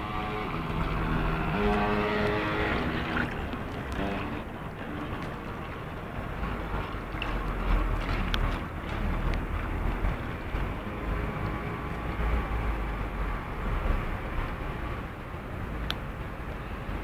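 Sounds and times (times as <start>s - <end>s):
model boat motor: 0.0s - 17.0s
faint clicks: 15.8s - 16.0s.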